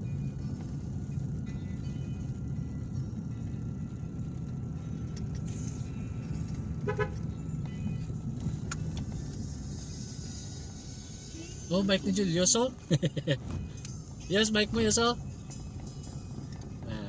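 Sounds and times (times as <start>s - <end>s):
vehicle rumble on road: 0.0s - 17.0s
car horn toot: 6.8s - 7.4s.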